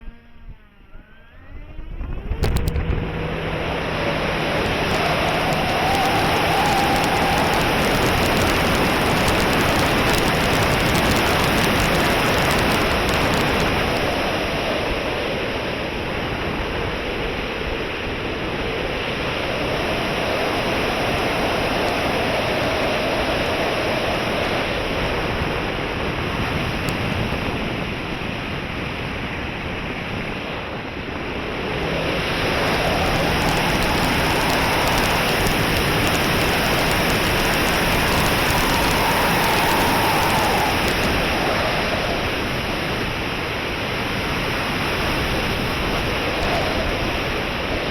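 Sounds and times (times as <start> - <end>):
model airplane motor whine: 0.0 - 16.9, 31.5 - 43.3
wind on microphone: 1.5 - 47.9.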